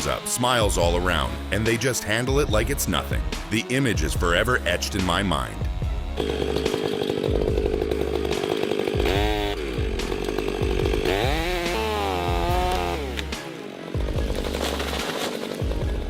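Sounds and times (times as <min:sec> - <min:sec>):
chainsaw running: 0:04.2 - 0:16.0.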